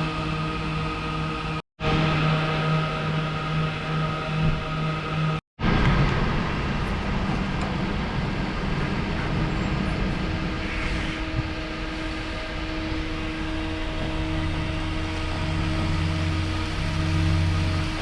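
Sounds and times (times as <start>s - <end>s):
truck diesel engine running: 11.5s - 18.0s.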